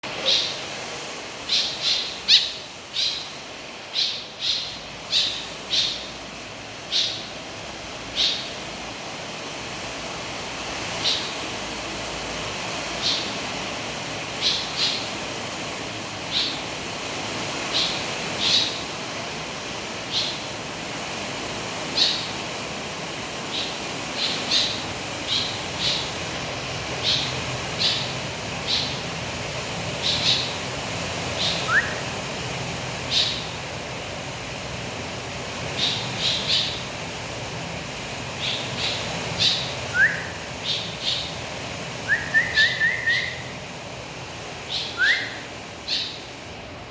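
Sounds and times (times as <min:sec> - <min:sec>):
bird chirping: 0:00.2 - 0:00.6, 0:01.4 - 0:06.2, 0:06.9 - 0:07.4, 0:08.1 - 0:08.6, 0:11.0 - 0:11.4, 0:13.0 - 0:13.4, 0:14.4 - 0:15.2, 0:16.2 - 0:16.7, 0:17.7 - 0:18.9, 0:20.1 - 0:20.5, 0:21.9 - 0:22.4, 0:23.5 - 0:26.2, 0:27.0 - 0:29.1, 0:30.0 - 0:30.7, 0:31.3 - 0:32.2, 0:33.1 - 0:33.6, 0:35.7 - 0:36.9, 0:38.4 - 0:41.4, 0:42.0 - 0:43.6, 0:44.6 - 0:46.3.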